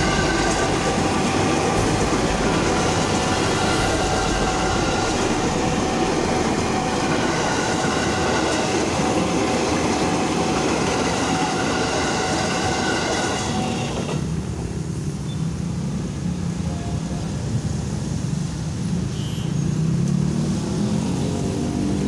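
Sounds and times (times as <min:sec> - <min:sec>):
steady tones: 0:00.0 - 0:14.2
train wheels rushing on rail: 0:00.0 - 0:22.0.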